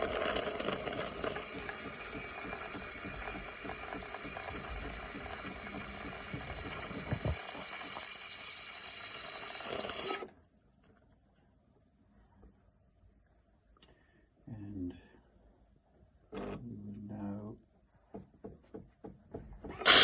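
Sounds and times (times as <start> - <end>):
coffee machine pump rattling: 0.0 - 10.3, 19.5 - 20.0.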